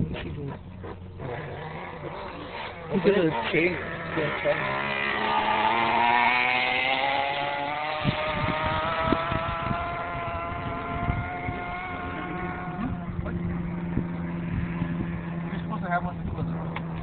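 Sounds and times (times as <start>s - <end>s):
toy truck motor running: 1.2s - 13.0s.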